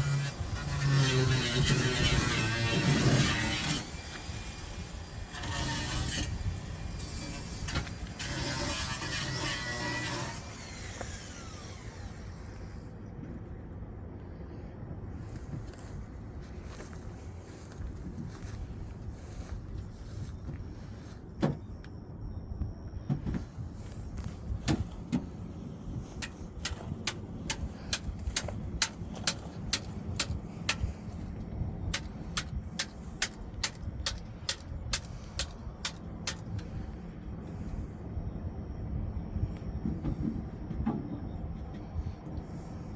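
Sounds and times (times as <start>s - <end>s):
steady low rumble: 10.5s - 42.9s.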